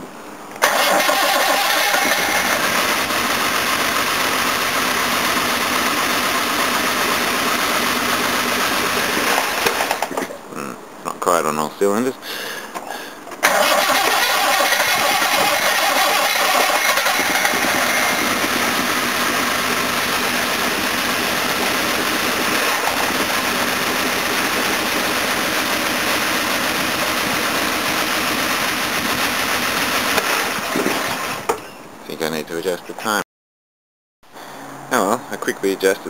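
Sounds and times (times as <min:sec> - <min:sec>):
car engine misfiring: 0:00.6 - 0:10.3, 0:13.4 - 0:28.8.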